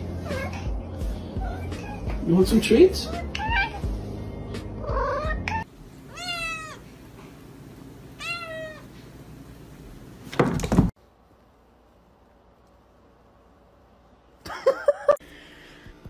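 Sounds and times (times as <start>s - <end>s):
cat meowing: 1.4s - 2.2s, 3.1s - 3.9s, 4.8s - 6.8s, 8.2s - 8.9s.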